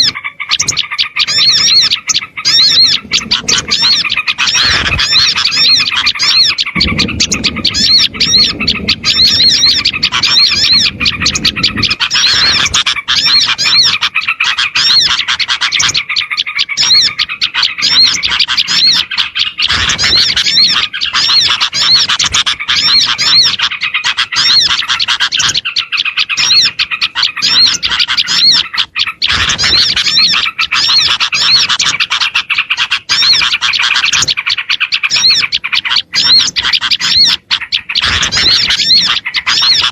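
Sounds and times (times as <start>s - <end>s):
small birds chirping chorus: 0.0s - 39.9s
low rumbling noise: 2.3s - 12.9s.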